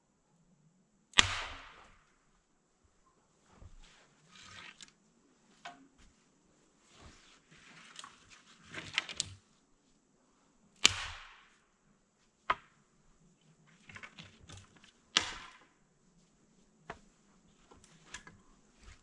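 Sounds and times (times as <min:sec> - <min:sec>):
dry branches snapping: 0:10.8 - 0:11.5, 0:15.1 - 0:15.7.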